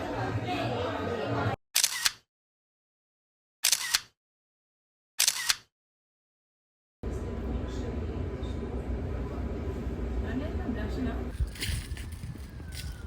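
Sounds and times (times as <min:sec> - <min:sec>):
camera shutter clicking: 0:01.8 - 0:02.2, 0:03.6 - 0:04.1, 0:05.2 - 0:05.7.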